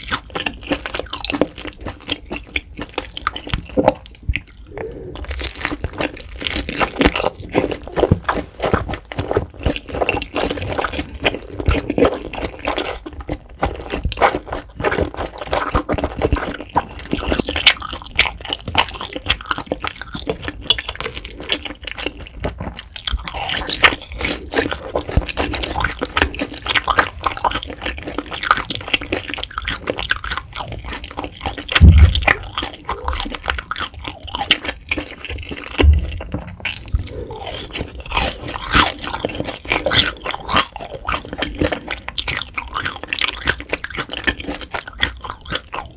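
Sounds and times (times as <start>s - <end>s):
crunchy wet chewing: 0.0s - 45.9s
mouth clicks: 1.0s - 8.4s
low thump: 31.8s - 32.4s.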